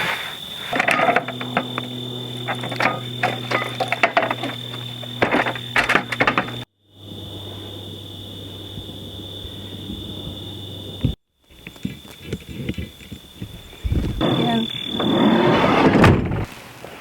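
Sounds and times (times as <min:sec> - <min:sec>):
steady low hum: 0:00.6 - 0:11.1
clicks and knocks of handling: 0:00.7 - 0:06.6.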